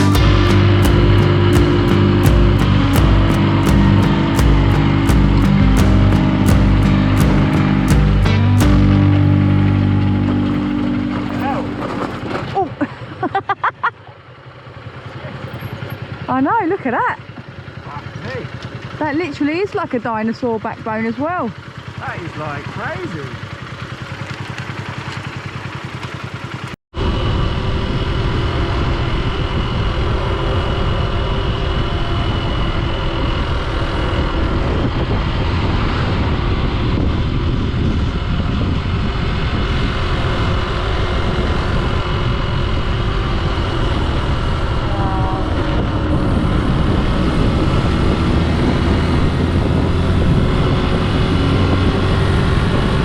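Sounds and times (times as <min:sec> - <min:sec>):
motorcycle engine: 0:00.0 - 0:13.2.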